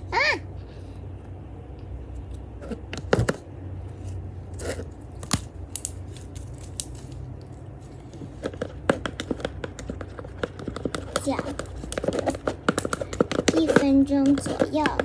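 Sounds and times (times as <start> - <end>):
spoon scraping small bowl: 4.0 - 4.9, 8.0 - 15.0.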